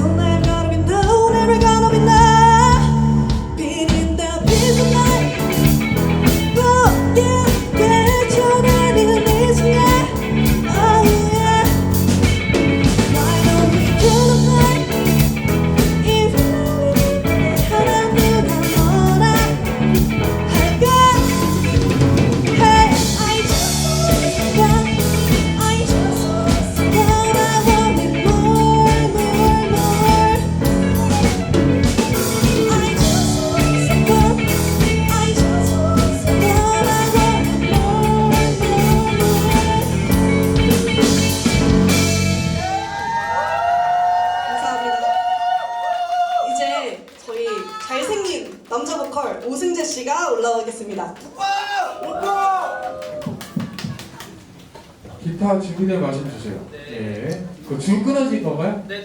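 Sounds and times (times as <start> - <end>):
live rock band playing: 0.0 - 43.4
woman singing lead: 0.0 - 45.8.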